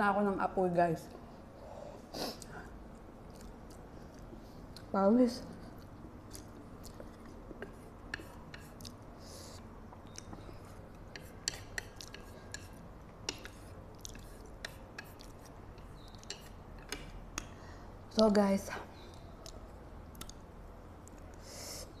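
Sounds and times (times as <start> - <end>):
chewing noodles: 2.4 - 4.9, 13.9 - 15.6.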